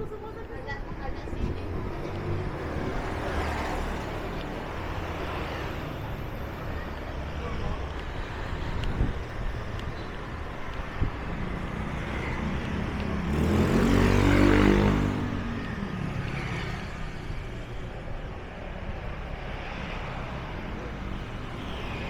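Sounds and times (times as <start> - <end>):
engine passing by: 1.4 - 6.6, 11.0 - 17.6.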